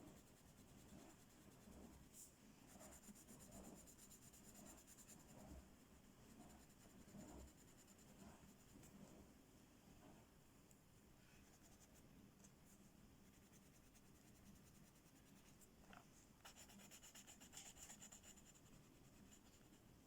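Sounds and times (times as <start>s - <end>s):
colouring tool rubbing on paper: 16.4s - 19.9s.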